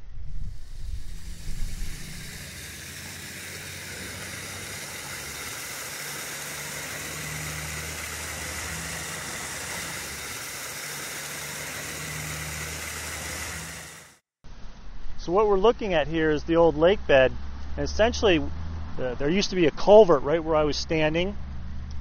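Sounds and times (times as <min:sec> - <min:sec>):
steady hiss: 0:00.4 - 0:14.2
motor humming: 0:00.5 - 0:14.2.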